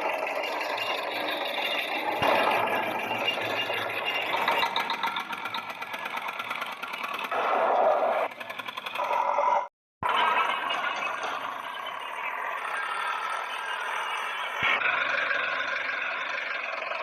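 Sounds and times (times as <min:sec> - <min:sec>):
toy motor and gears whirring: 0:00.0 - 0:17.0
fine rapid ticking: 0:00.1 - 0:07.4.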